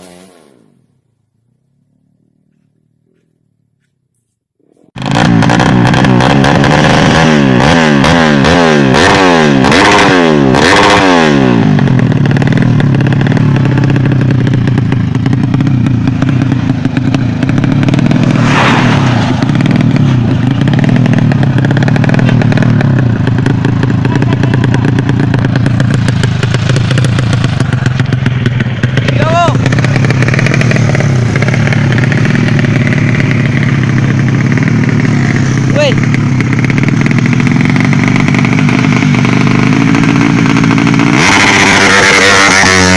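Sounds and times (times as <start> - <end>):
motorcycle engine revving: 0.0 - 3.9, 4.6 - 42.9
brief rushing noise: 17.9 - 21.3.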